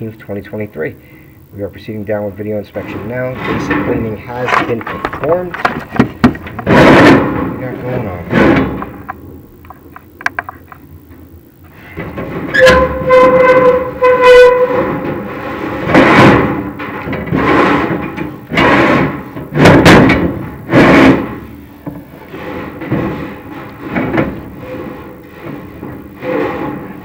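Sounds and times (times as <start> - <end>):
rough scraping on metal flue: 2.8 - 5.8, 11.7 - 27.0
metal on metal squeal: 11.9 - 16.5, 24.6 - 27.0.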